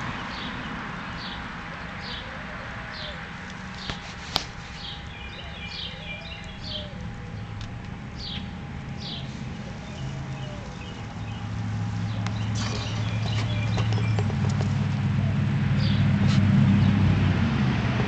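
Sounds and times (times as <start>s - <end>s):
steady low rumble: 3.2s - 18.0s
bird chirping: 4.7s - 16.1s.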